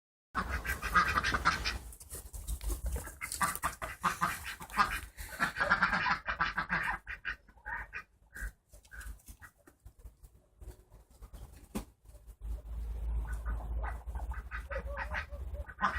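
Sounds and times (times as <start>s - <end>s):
duck and dog scuffling: 0.4s - 15.9s
short duck calls: 13.3s - 15.9s.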